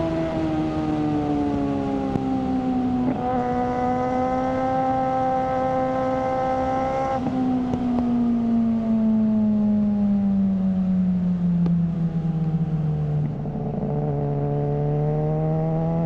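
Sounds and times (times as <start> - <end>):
motorcycle engine revving: 0.0 - 9.0, 12.5 - 16.0.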